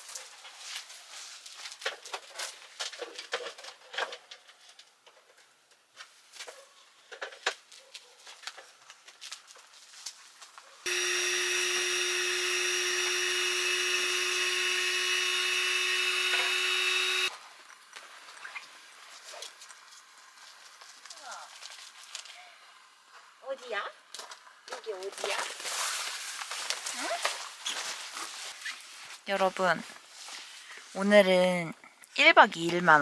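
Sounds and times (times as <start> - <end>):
small electric motor whining: 10.9 - 17.3.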